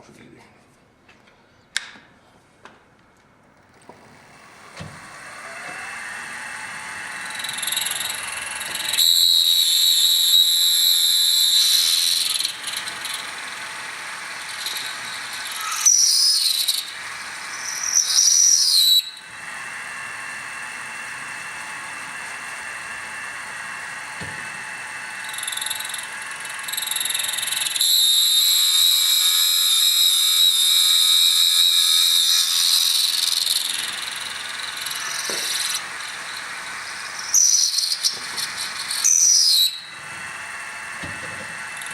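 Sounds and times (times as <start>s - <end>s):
drill cutting into aluminum: 3.8s - 41.9s
high squealing whine: 4.0s - 41.9s.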